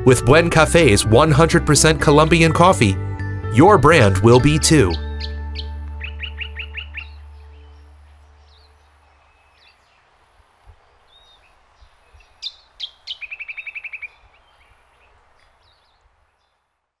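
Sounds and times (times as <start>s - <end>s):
birds chirping: 3.6s - 17.0s
faint outdoor hiss: 3.6s - 17.0s
sharp falling bird calls: 4.8s - 16.6s.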